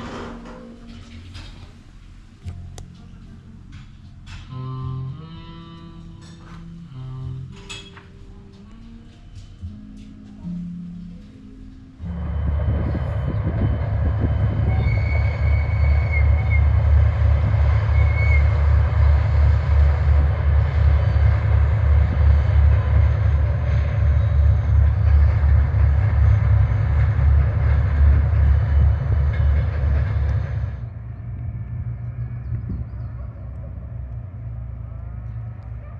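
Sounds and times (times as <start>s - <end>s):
diesel train engine throbbing: 10.5s - 35.9s
short high squeal: 14.6s - 16.8s.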